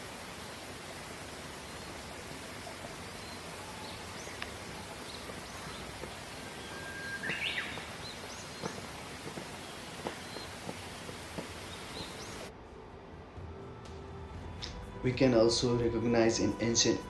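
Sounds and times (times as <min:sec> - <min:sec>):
birds chirping: 0:00.0 - 0:12.5
steady outdoor hiss: 0:00.0 - 0:17.0
bird whistling song: 0:02.7 - 0:12.5.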